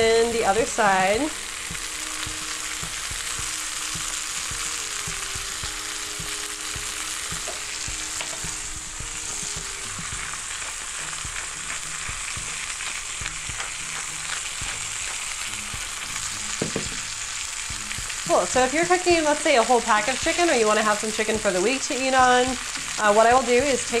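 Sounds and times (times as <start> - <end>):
chicken sizzling in oil: 0.0 - 24.0
oil crackling and popping: 0.0 - 24.0.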